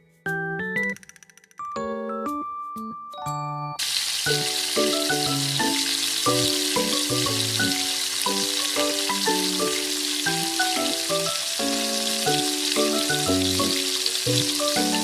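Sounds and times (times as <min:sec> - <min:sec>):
rice sizzling in hot pot: 0:03.8 - 0:15.0
background music sustained melody: 0:04.4 - 0:15.0.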